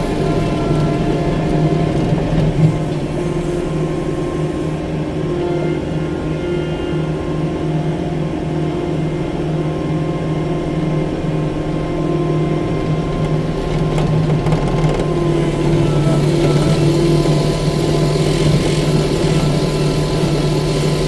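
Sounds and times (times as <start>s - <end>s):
diesel loader engine running: 0.0s - 5.7s, 10.3s - 21.0s.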